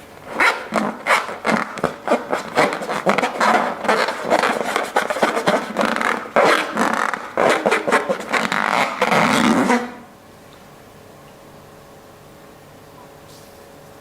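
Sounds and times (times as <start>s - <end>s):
slime squelching and crackling: 0.4s - 10.0s.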